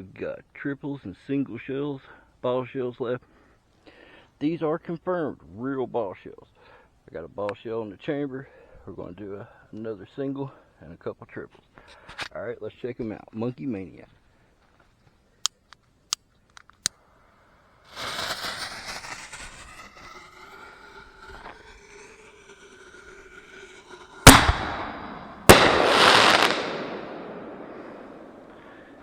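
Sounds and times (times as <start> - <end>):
firework crackling: 18.0 - 29.0
firework launch bang: 24.3 - 29.0
firework shell bursting: 24.3 - 29.0.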